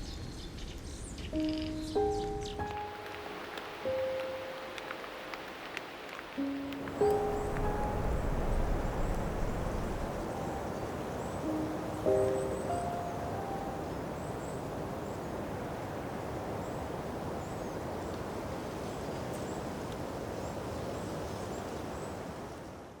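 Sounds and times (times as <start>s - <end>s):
outdoor hiss: 1.3s - 15.2s.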